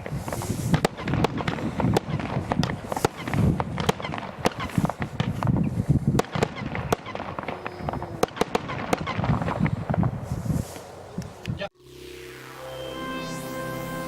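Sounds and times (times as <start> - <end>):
firework sharp cracks: 0.0 - 10.9.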